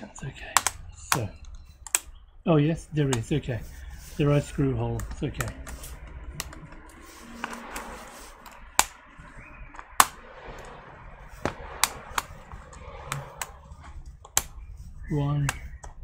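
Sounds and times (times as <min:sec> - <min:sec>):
clicks of plastic and metal parts: 0:00.4 - 0:02.2.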